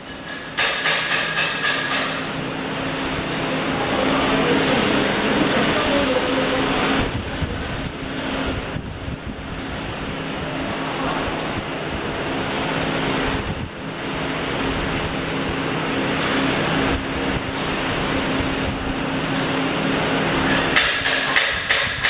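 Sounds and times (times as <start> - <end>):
welding arc hissing: 0.0 - 22.0
welding machine hum: 0.0 - 22.0.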